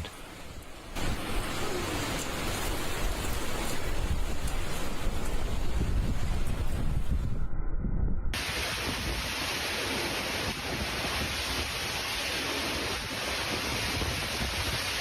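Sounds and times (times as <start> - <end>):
storm rushing hiss: 0.5 - 7.5, 8.3 - 15.0
low rumble: 4.0 - 8.6.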